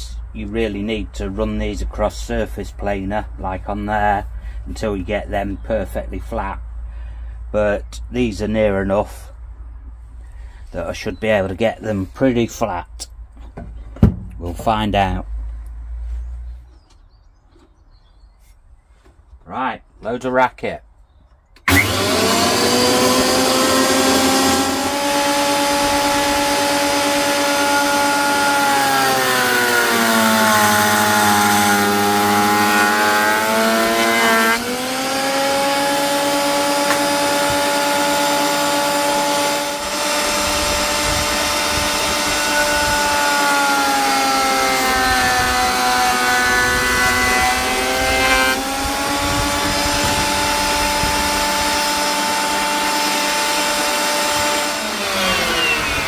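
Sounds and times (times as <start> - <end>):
thickness planer whining: 21.6 - 56.0
planer cutting boards: 21.7 - 56.0.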